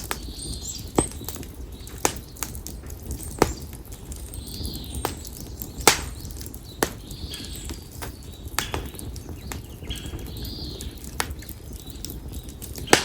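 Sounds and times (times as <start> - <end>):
bird chirping: 0.0 - 13.0
campfire popping and cracking: 0.0 - 13.0
low hiss of fire: 0.0 - 13.0.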